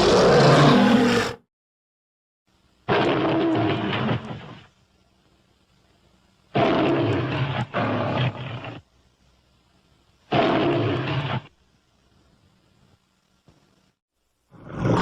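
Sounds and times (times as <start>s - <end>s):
monster roaring in deep voice: 0.0s - 1.4s, 14.6s - 15.0s.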